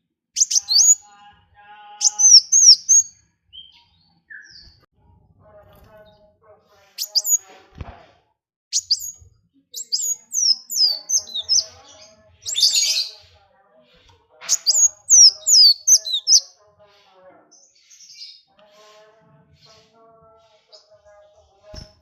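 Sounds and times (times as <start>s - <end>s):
songbird chirping: 0.0s - 4.9s, 7.0s - 7.6s, 8.8s - 16.6s.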